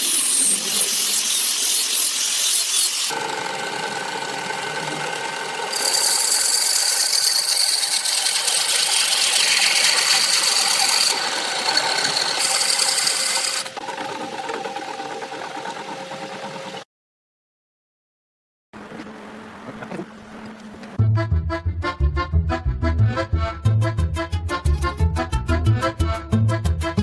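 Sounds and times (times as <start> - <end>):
power tools whining on wood: 0.0 - 16.8.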